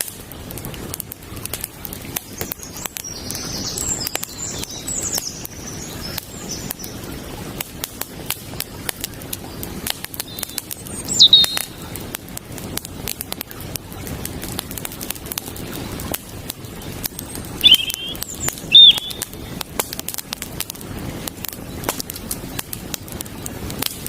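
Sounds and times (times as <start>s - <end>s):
campfire crackling and popping: 0.0s - 24.0s
creek water rushing: 0.2s - 23.8s
birds chirping: 10.2s - 11.8s, 17.1s - 19.4s
bird call falling in pitch: 10.3s - 11.7s, 17.6s - 19.2s.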